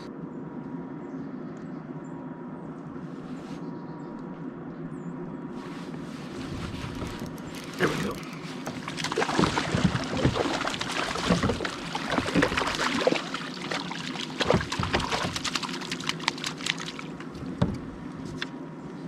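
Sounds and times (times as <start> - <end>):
fish splashing in water: 7.0 - 17.5.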